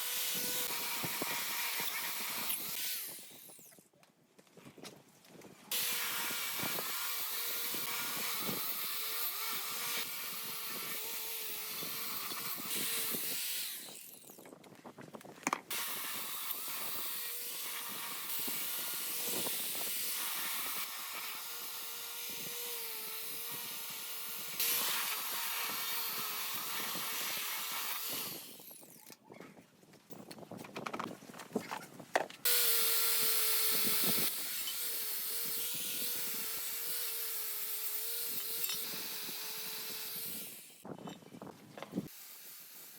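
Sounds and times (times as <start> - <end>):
power tool whining: 0.0 - 3.8, 5.7 - 14.5, 15.7 - 29.0, 32.4 - 40.9.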